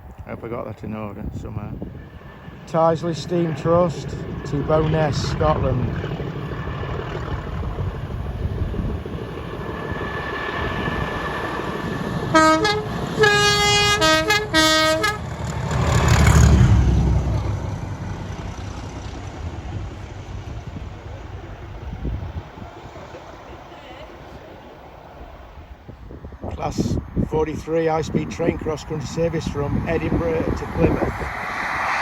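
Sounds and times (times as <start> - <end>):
train engine rumble: 0.0 - 32.0
two-tone locomotive horn blasts: 12.3 - 15.4.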